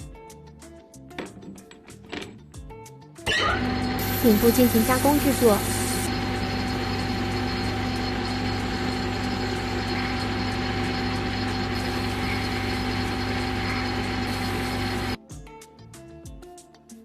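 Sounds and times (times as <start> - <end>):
lathe humming and whining: 3.4 - 15.2.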